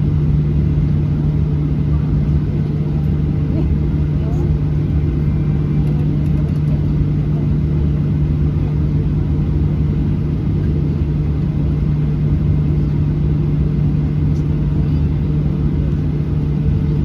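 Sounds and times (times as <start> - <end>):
jet cabin engine rumble: 0.0 - 17.0.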